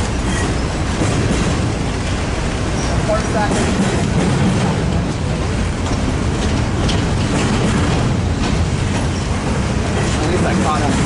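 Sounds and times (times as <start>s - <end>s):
freight train wheels rumbling on rails: 0.0s - 11.0s.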